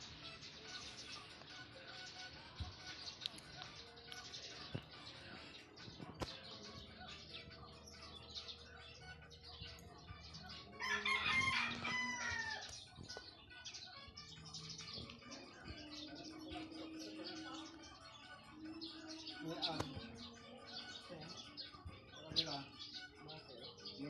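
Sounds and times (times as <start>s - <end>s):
small birds chirping: 0.0s - 24.0s
rooster crowing: 10.8s - 12.7s.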